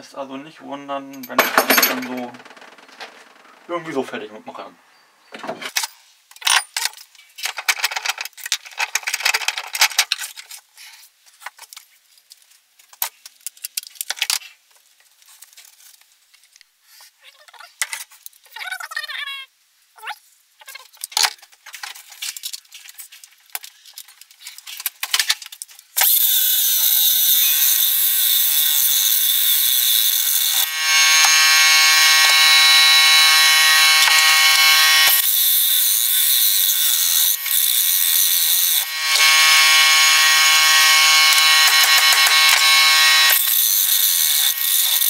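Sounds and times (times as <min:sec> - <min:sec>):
power tool motor whining: 0:26.0 - 0:45.0.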